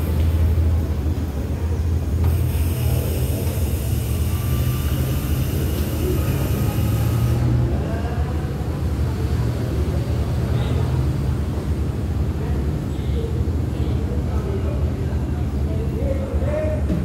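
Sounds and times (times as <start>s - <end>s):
diesel train idling: 0.0s - 12.3s.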